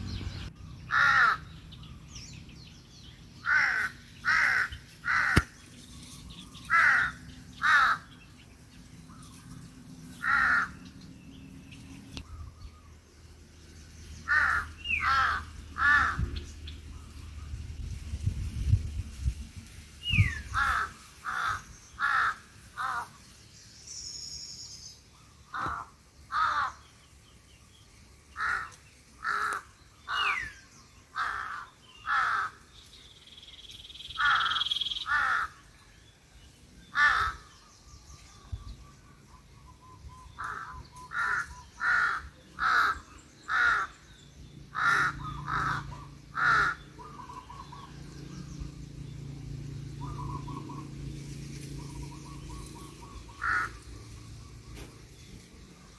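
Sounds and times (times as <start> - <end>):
other birds calling: 0.0 - 13.2, 13.8 - 17.6, 20.0 - 55.9
crows cawing: 0.9 - 1.6, 3.4 - 5.6, 6.7 - 8.2, 10.2 - 10.8, 14.3 - 16.3, 20.5 - 23.2, 25.5 - 26.9, 28.4 - 30.4, 31.2 - 32.6, 34.2 - 35.7, 36.9 - 37.6, 40.4 - 44.1, 44.7 - 47.8, 53.2 - 54.0.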